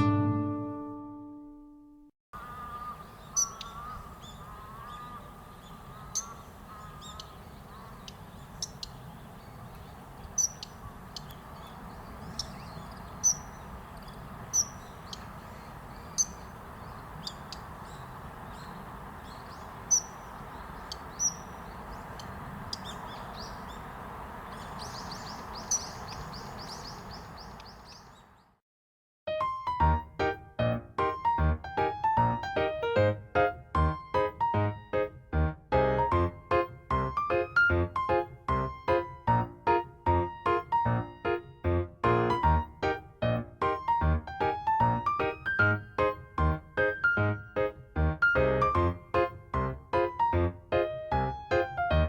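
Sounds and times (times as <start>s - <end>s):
bird giving sharp high calls: 2.4s - 9.2s, 10.2s - 28.4s
rapid high bird trill: 2.4s - 28.5s
outdoor background noise: 2.4s - 28.6s.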